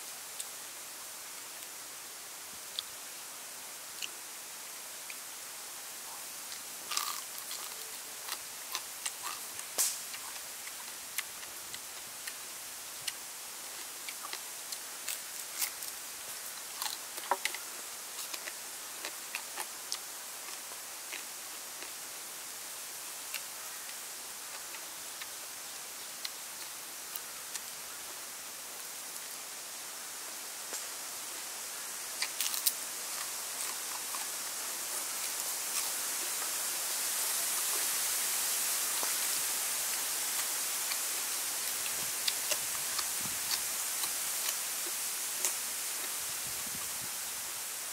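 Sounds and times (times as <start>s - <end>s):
steady hiss: 0.0s - 47.9s
crunching and chewing: 4.0s - 4.2s, 6.1s - 22.2s, 23.2s - 25.4s, 32.1s - 36.6s, 38.8s - 47.1s.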